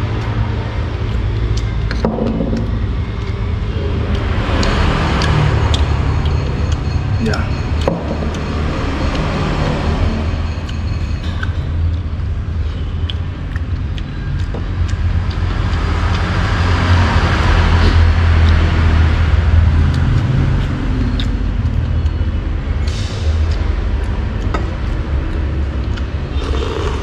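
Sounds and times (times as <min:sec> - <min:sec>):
road traffic rumble: 0:00.0 - 0:27.0
vehicle passing close by: 0:03.8 - 0:10.7.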